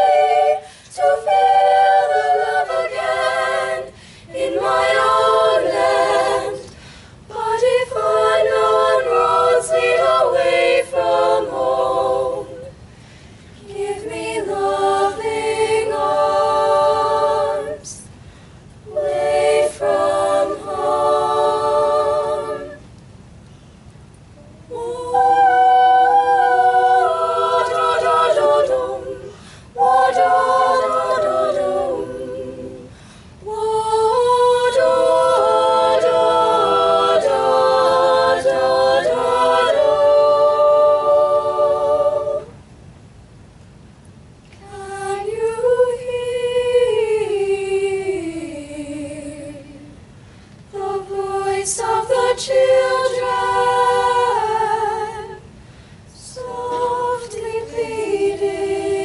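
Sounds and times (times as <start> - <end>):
choir singing a cappella: 0.0 - 12.9, 13.6 - 18.2, 18.8 - 22.9, 24.4 - 42.6, 44.6 - 50.1, 50.7 - 59.0.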